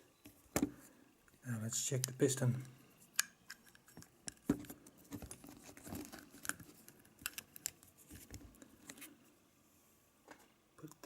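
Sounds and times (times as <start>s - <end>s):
small parts and tools clicking: 2.0s - 7.9s.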